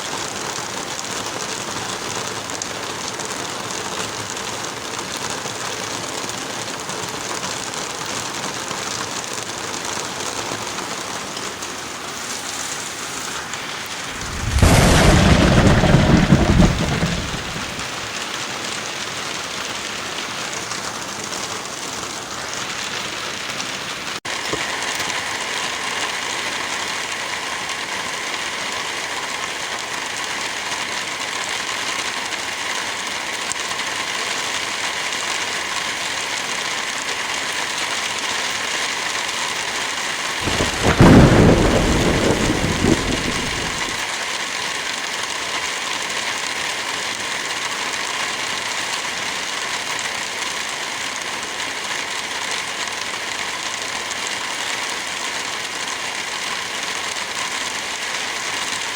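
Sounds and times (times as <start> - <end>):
heavy rain falling: 0.0 - 58.9
thunder clap rumbling: 14.1 - 18.0, 40.4 - 44.1.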